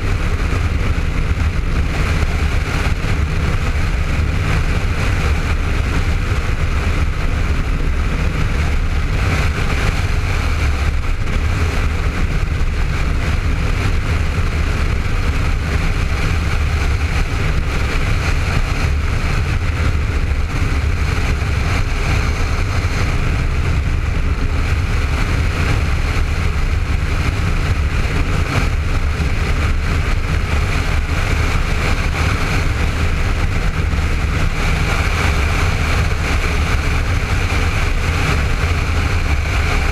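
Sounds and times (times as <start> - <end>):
motorcycle engine running: 0.0 - 39.9
wind rush: 0.0 - 39.9.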